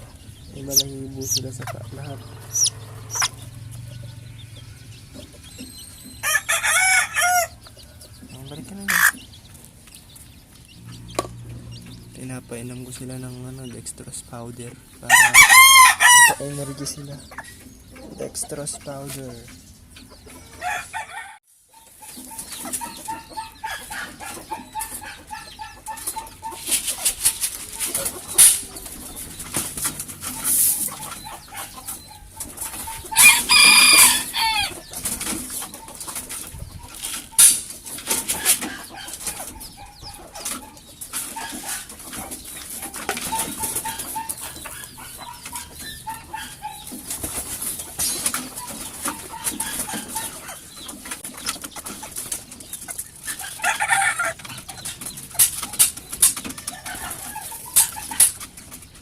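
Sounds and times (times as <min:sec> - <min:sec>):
loud harsh chicken call: 0:00.0 - 0:04.8, 0:05.6 - 0:07.6, 0:15.1 - 0:16.8, 0:32.6 - 0:34.8, 0:53.3 - 0:54.4
chickens clucking and calling: 0:00.0 - 0:59.0.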